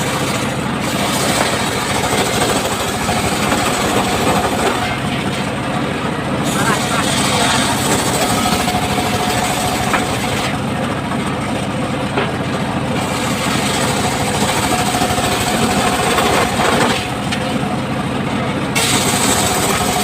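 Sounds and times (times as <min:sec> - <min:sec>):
engine-driven circular saw: 0:00.0 - 0:20.0.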